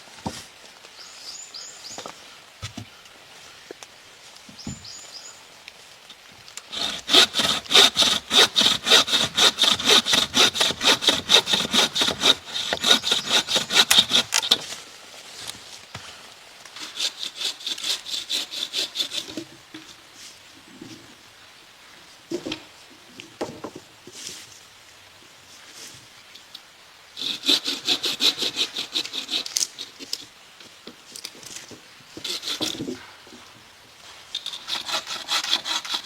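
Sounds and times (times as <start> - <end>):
hand saw cutting wood: 6.7 - 14.8, 16.8 - 19.4, 27.2 - 30.2, 32.2 - 33.0, 34.4 - 36.0.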